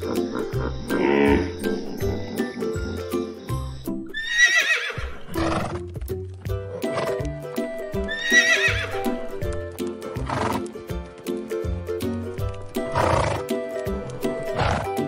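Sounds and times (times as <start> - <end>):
horse neighing: 0.0 - 3.2, 4.1 - 5.8, 8.1 - 9.0
children's background music: 0.0 - 4.3, 5.0 - 15.0.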